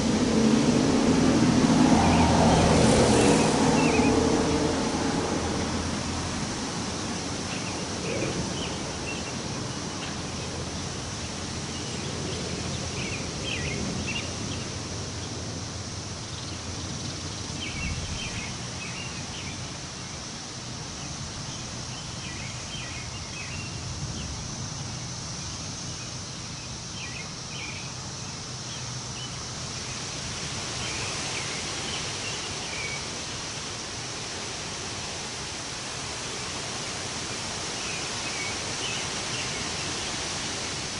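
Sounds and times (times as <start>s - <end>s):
wind rustling leaves: 0.0s - 40.9s
small birds chirping: 7.0s - 15.4s.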